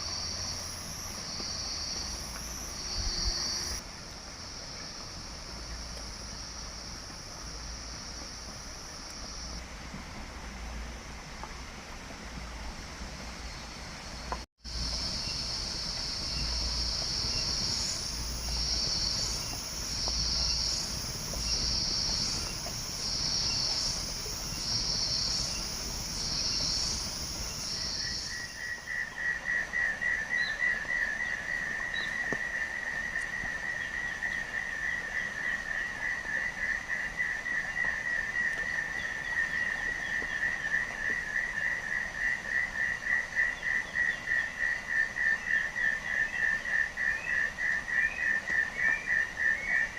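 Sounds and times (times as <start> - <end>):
insect high shrill buzz: 0.0 - 9.6, 14.7 - 31.2
insect pulsed trill: 0.0 - 9.6, 14.6 - 49.8.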